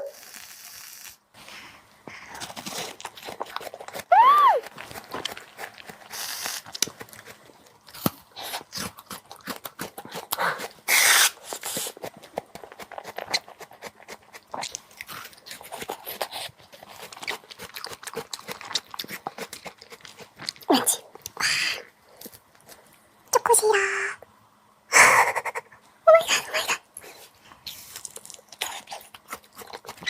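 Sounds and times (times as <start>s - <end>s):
crunchy chewing of frozen fruit: 2.1s - 23.0s, 27.0s - 30.0s.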